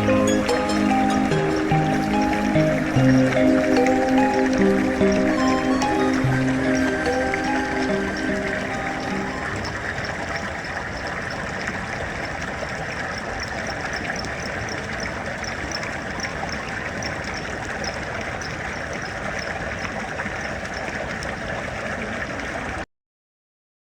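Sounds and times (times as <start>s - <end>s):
high repeating chirp: 0.0s - 9.9s
flowing water: 0.0s - 22.8s.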